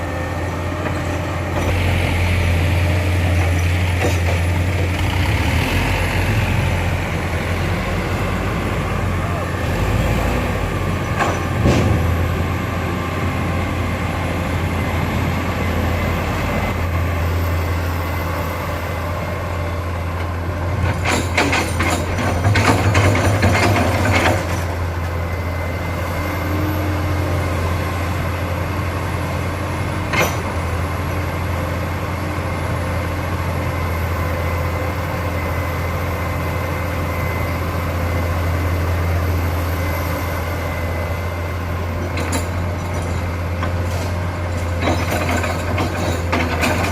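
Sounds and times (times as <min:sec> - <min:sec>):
heavy diesel engine running: 0:00.0 - 0:46.9
clattering and knocking: 0:20.8 - 0:24.7, 0:44.6 - 0:46.9.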